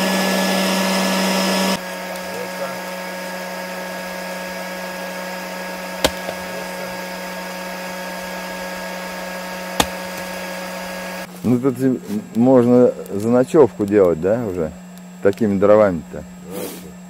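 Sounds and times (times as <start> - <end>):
electric air pump humming: 0.0 - 17.0
sharp clicks: 13.0 - 15.4.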